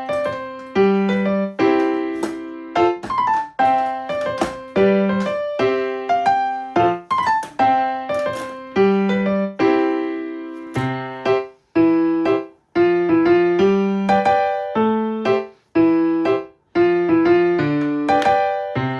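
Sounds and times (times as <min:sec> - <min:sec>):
piano music: 0:00.0 - 0:18.9.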